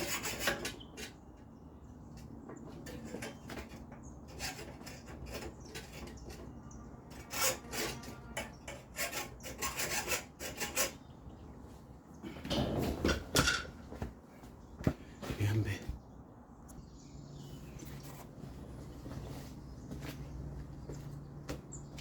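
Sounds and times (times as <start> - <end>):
hand saw cutting wood: 0.0 - 1.2, 2.8 - 11.0.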